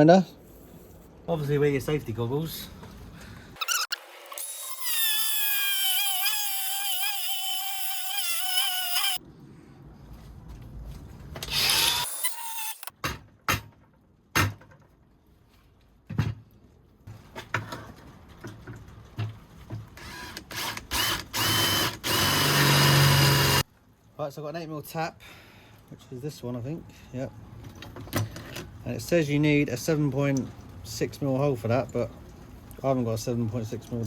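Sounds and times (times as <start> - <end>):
angle grinder cutting metal: 3.6 - 9.2, 11.5 - 12.9.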